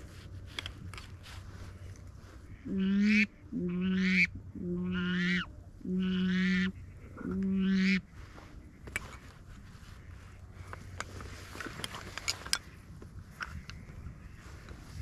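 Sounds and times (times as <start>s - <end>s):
waterfowl call honking: 2.5s - 8.1s.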